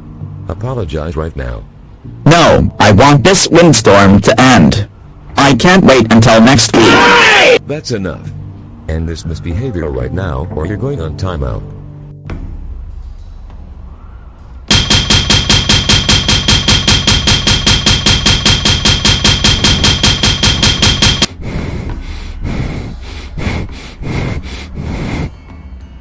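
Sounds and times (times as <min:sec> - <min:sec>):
rapid ringing banging: 0:12.3 - 0:26.0.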